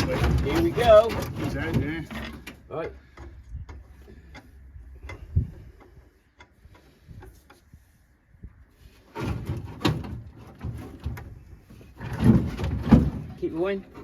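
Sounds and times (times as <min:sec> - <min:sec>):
metal scraping and clanking: 0:00.0 - 0:03.2, 0:08.8 - 0:14.0
knocks and clunks: 0:00.0 - 0:07.3, 0:09.0 - 0:14.0.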